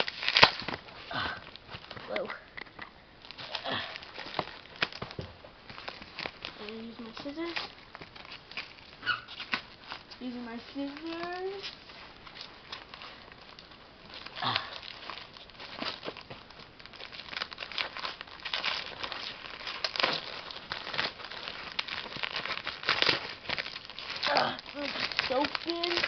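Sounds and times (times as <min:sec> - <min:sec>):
scissors cutting packaging: 0:00.0 - 0:00.8, 0:17.0 - 0:26.0
packaging crinkling and tearing: 0:00.0 - 0:26.0.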